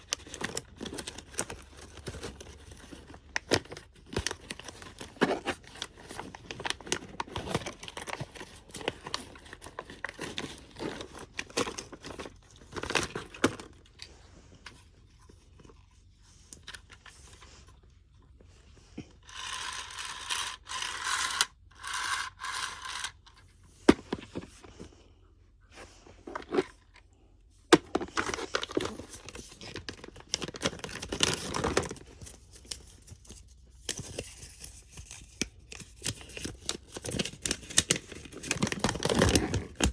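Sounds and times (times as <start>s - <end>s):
plastic packaging crinkling and tearing: 0.0s - 14.2s, 27.8s - 39.9s.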